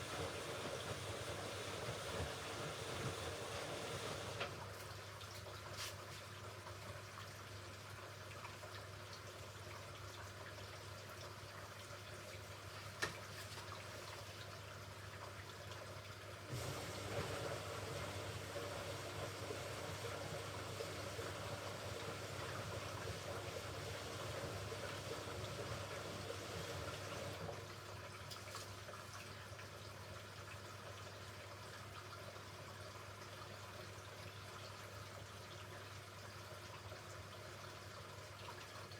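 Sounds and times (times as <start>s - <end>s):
water rushing into machine: 0.0s - 4.9s, 16.5s - 27.9s
washing machine humming: 0.0s - 8.7s, 9.6s - 29.6s.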